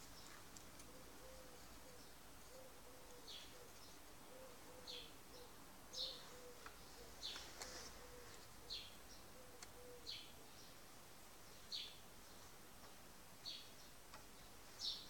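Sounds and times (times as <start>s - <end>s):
faint bird chirps: 0.1s - 10.8s
faint clicks: 14.1s - 14.3s.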